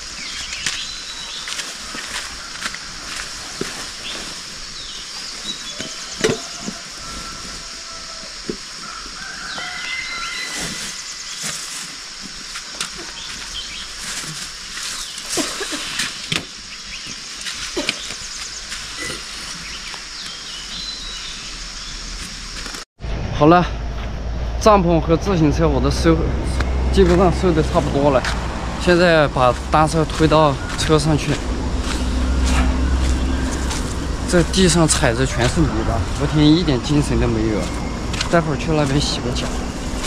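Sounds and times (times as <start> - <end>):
camping gear knocks and rustles: 4.8 - 7.7
rain hissing: 10.3 - 22.9, 26.0 - 40.0.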